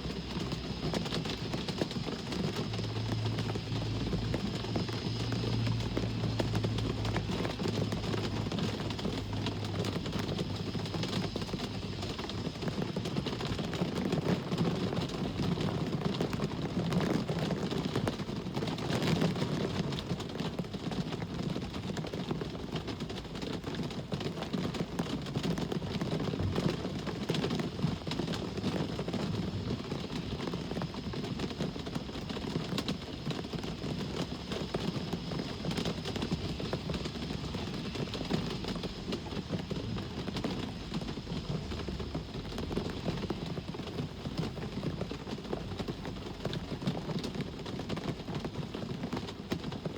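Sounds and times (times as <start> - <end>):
low engine hum: 0.0 - 12.8
steady rain: 0.0 - 49.9.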